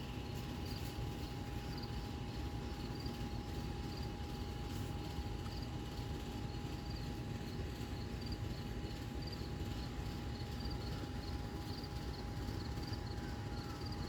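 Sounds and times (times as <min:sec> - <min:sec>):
faint continuous tone: 0:00.0 - 0:14.0
cricket chirping: 0:00.2 - 0:05.7.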